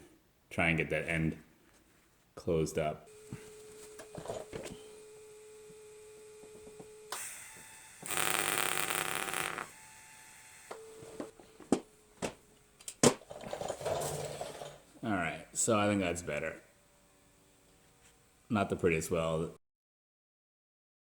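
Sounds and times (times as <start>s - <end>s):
welding burst: 8.0s - 9.8s
steady hum: 8.1s - 9.7s.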